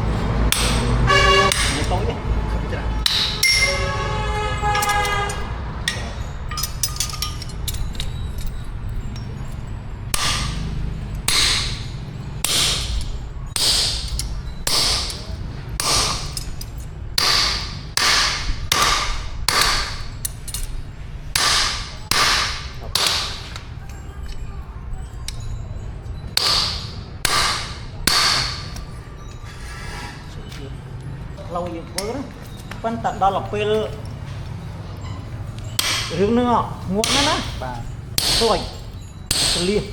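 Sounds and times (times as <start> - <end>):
ringing metallic tone: 0.0 - 39.9
hammer blows on anvil: 0.5 - 2.2, 3.0 - 8.5, 10.1 - 16.6, 17.2 - 20.7, 21.3 - 23.6, 26.3 - 29.7, 35.7 - 39.9.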